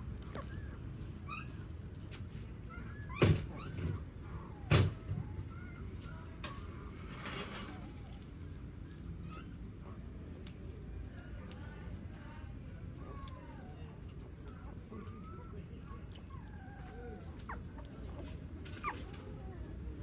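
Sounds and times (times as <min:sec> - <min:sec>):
puppies squeaking: 0:00.0 - 0:01.7, 0:14.5 - 0:19.6.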